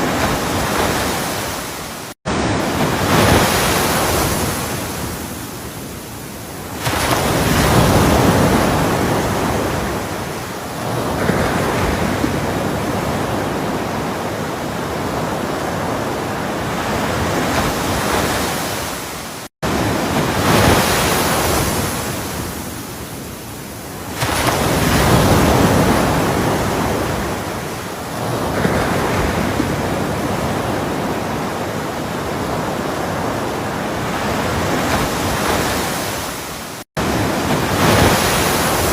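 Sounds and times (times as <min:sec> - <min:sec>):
ocean waves breaking: 0:00.0 - 0:38.9
hissing wash of surf: 0:35.0 - 0:38.9.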